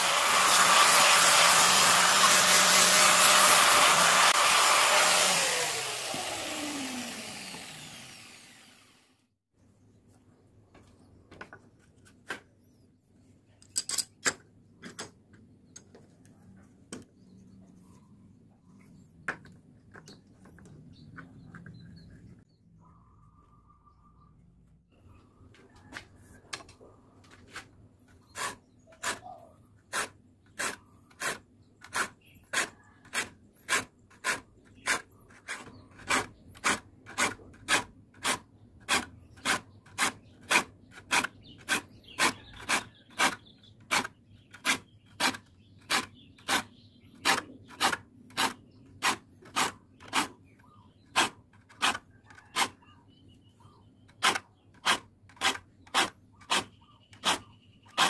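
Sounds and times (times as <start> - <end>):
file rasping saw teeth: 0.0 - 8.6, 28.1 - 52.8, 54.1 - 58.0.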